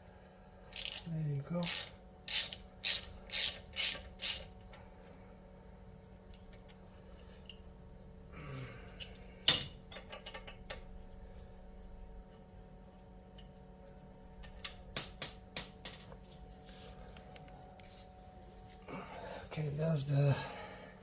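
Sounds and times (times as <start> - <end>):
ratchet clicking: 0.7 - 4.6.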